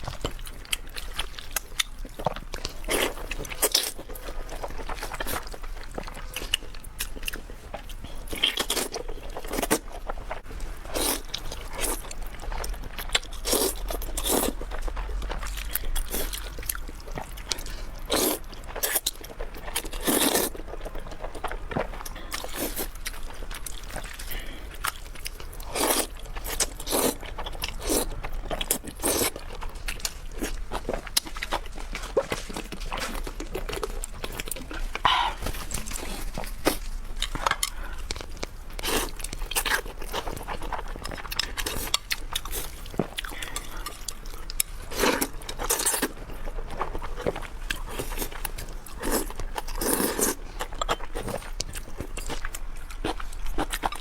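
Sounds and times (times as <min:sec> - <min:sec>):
person biting and chewing: 0:24.8 - 0:54.0.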